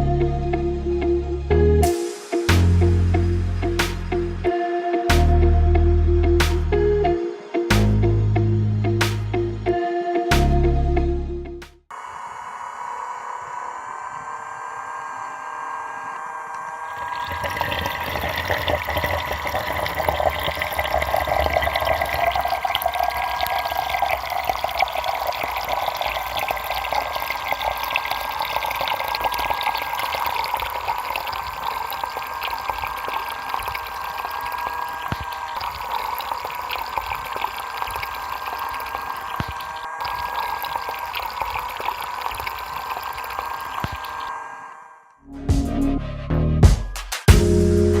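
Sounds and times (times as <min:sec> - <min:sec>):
electric water pump whining: 0:11.9 - 0:45.0
water gushing and splashing: 0:16.9 - 0:44.3.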